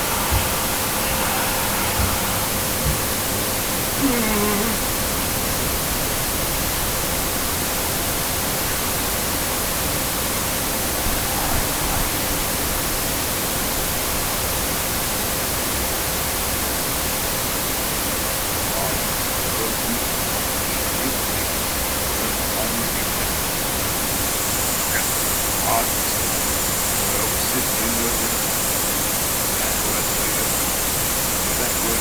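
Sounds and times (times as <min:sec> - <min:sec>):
faint steady tone: 0:00.0 - 0:05.6, 0:18.7 - 0:32.0
white noise static hiss: 0:00.0 - 0:32.0.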